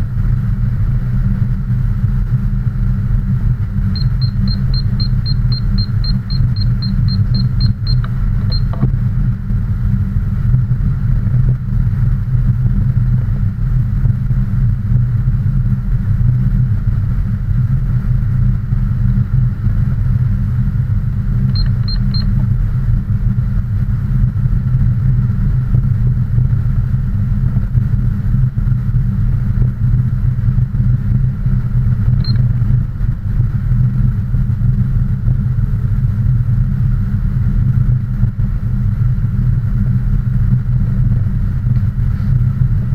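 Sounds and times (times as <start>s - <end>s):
vehicle engine rumble: 0.0s - 12.7s.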